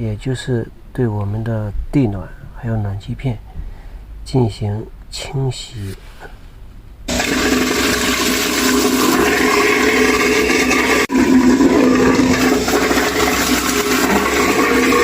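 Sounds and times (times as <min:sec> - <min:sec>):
water rushing through plumbing: 0:07.1 - 0:15.0.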